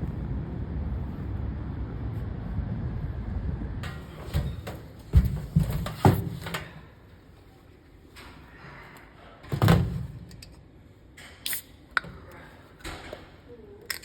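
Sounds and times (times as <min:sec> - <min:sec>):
dull thumps: 0:04.0 - 0:06.7.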